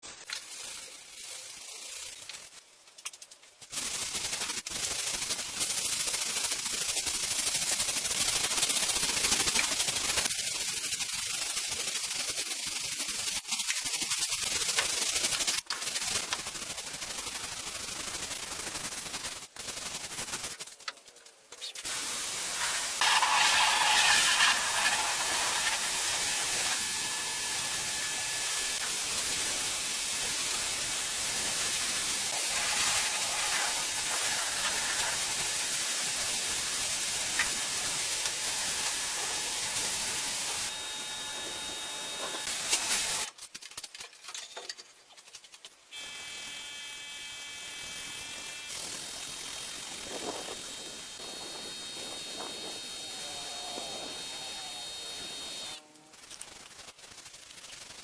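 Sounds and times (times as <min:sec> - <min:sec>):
steady hissing noise: 0:21.8 - 0:43.3, 0:47.8 - 0:56.9.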